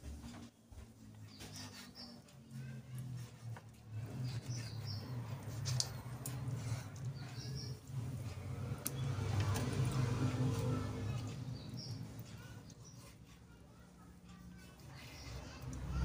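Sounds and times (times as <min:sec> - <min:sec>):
bird chirping: 0:04.1 - 0:05.4, 0:07.1 - 0:07.8, 0:11.0 - 0:13.1.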